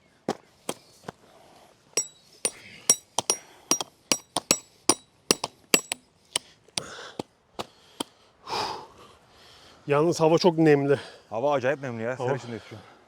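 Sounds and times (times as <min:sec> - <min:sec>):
tent pegs being hammered: 0:02.0 - 0:07.7.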